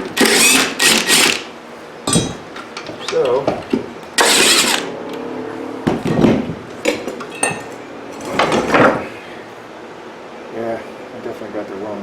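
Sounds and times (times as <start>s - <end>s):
short knocks with metallic ring: 2.1s - 2.4s, 5.9s - 7.8s.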